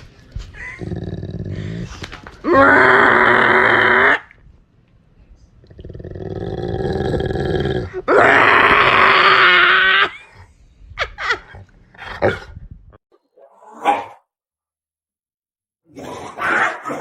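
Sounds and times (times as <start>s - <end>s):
dog growling: 0.6s - 4.3s, 5.7s - 8.4s.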